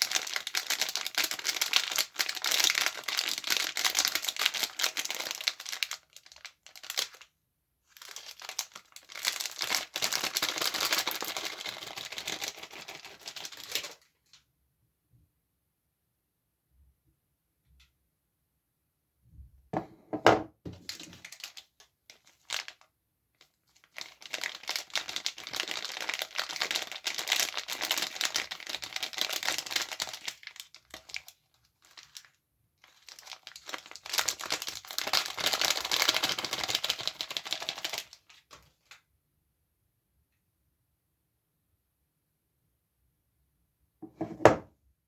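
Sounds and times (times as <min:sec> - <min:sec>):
soap wrapper crinkling: 0:00.0 - 0:07.3, 0:07.9 - 0:14.1, 0:20.7 - 0:39.0.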